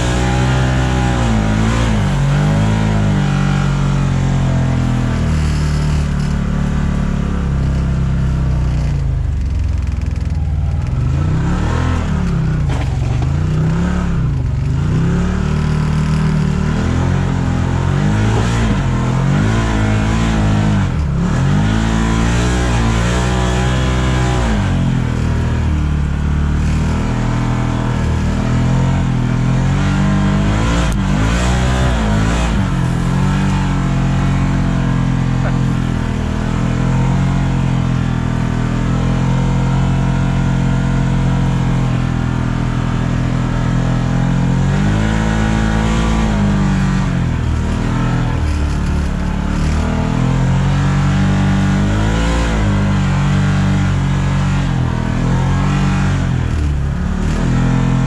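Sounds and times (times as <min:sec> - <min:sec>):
engine running and revving: 0:00.0 - 0:58.0.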